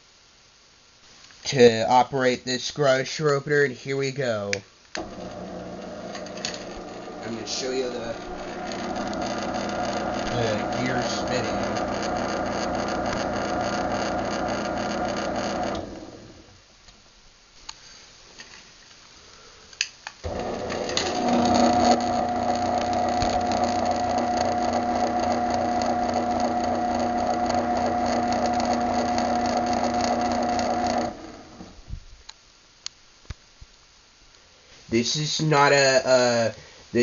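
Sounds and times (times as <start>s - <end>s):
garage door opener motor hum: 5.0s - 16.5s, 20.2s - 31.9s.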